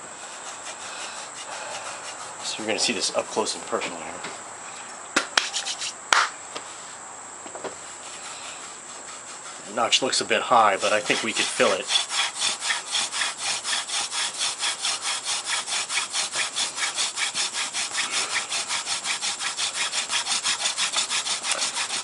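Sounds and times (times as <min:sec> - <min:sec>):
wooden spindle rasping in notch: 0:00.0 - 0:02.5, 0:07.8 - 0:22.0.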